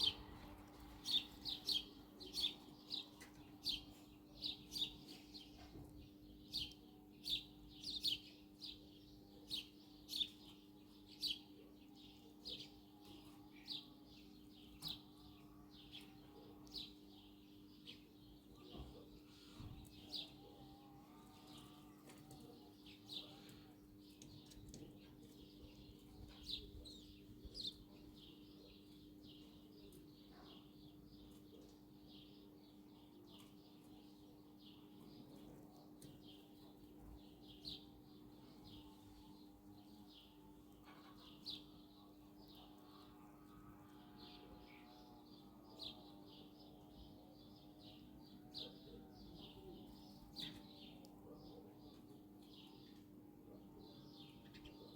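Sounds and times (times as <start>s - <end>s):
faint birds chirping: 0.0s - 54.9s.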